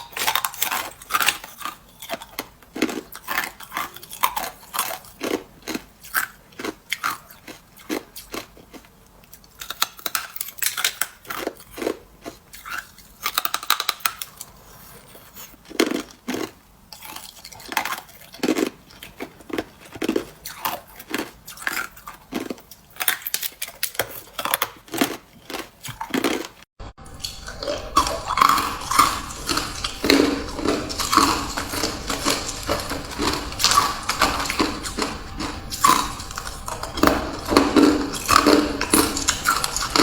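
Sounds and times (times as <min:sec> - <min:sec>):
ice being chewed: 0:00.0 - 0:40.0.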